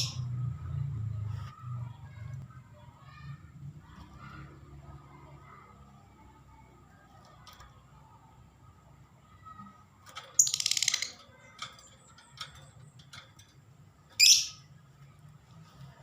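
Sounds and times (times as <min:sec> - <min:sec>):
lovebird harsh chatter: 0:10.4 - 0:11.5, 0:14.2 - 0:14.7
bird chirps: 0:14.2 - 0:14.7.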